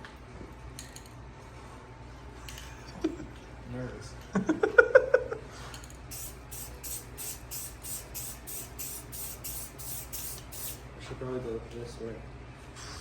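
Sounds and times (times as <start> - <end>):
spray paint hissing in bursts: 6.1 - 10.9.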